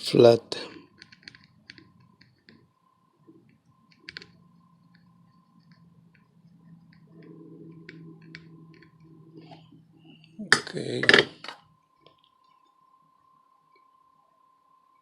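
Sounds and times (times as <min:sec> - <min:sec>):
faint steady hum: 0:00.0 - 0:15.0
metal tools tapping on circuit board: 0:10.6 - 0:11.6.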